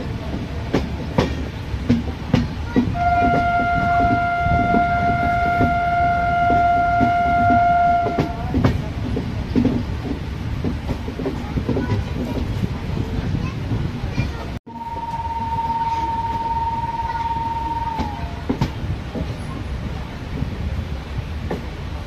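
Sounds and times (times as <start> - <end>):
train wheels clattering on rails: 0.0 - 15.2, 15.8 - 22.0
train horn blast: 2.9 - 8.6, 14.7 - 18.5.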